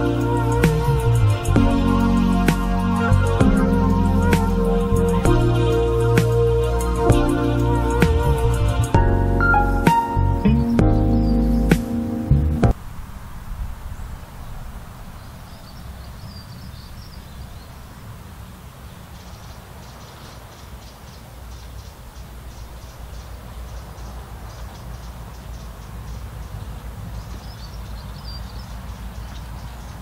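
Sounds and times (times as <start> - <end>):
garden birds singing: 0.0 - 12.8, 13.9 - 30.0
low outdoor rumble: 0.0 - 18.8.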